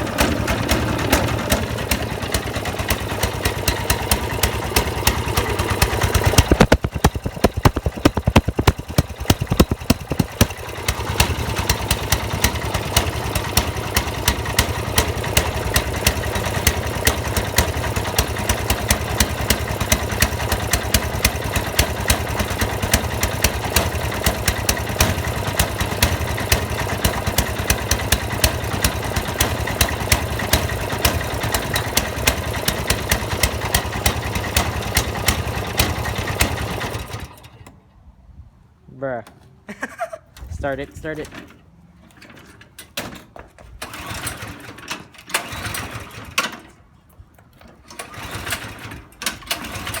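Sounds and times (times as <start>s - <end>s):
engine pops and bangs: 0.0s - 34.7s
snowblower engine misfiring: 0.0s - 37.6s, 43.8s - 46.6s, 47.9s - 50.0s.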